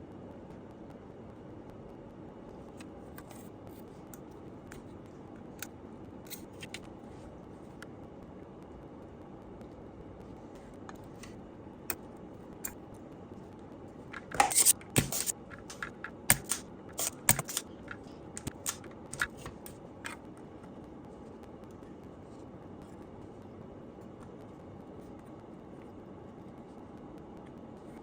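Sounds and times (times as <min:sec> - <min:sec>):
small tools clicking and scraping: 0:14.2 - 0:20.2.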